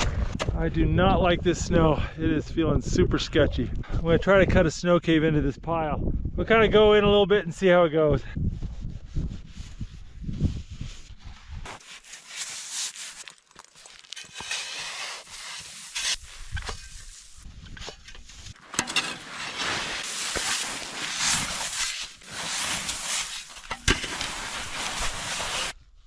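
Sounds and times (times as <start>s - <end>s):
shovel scraping snow: 9.6s - 25.8s.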